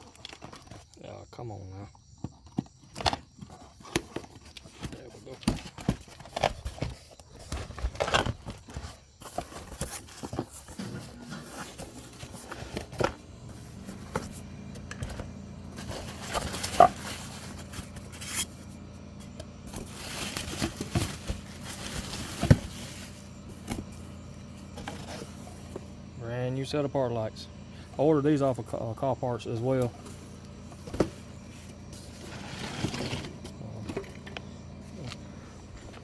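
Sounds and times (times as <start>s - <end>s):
packaging scraping and crackling: 0.0s - 1.0s, 2.9s - 23.7s, 32.0s - 34.2s
steady low hum: 6.4s - 36.0s.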